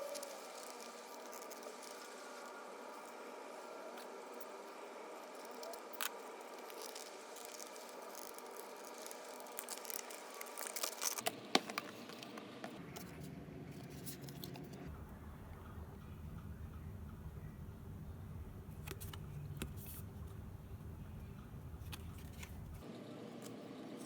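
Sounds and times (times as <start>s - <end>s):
plastic and cardboard rustling: 0.0s - 4.6s, 5.3s - 14.9s
low steady hum: 0.0s - 24.0s.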